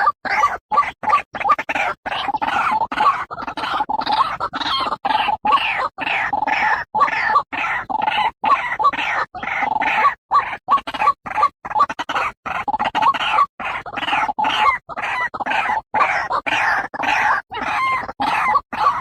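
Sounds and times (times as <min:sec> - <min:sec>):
bird harsh croaking call: 0:00.0 - 0:19.0.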